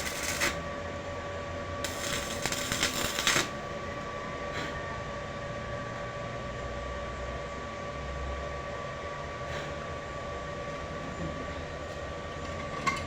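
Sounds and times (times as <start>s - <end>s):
welding arc crackling: 0.0s - 0.6s, 1.8s - 3.7s
steady hum with faint whine: 0.0s - 13.0s.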